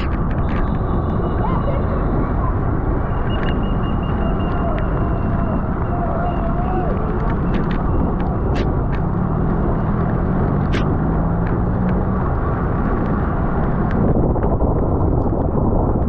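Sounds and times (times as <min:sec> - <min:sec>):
road noise: 0:00.0 - 0:16.0
wind rushing on microphone: 0:00.0 - 0:16.0
bicycle clicks: 0:02.8 - 0:14.1.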